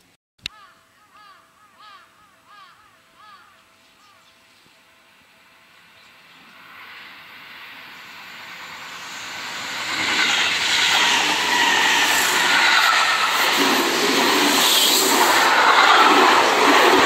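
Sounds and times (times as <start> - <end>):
electric train passing: 4.8 - 17.0.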